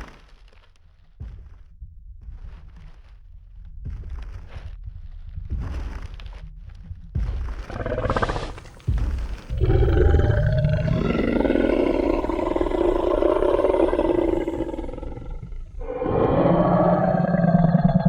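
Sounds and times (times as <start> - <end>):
deep dinosaur roar: 7.7 - 8.7, 9.5 - 18.0.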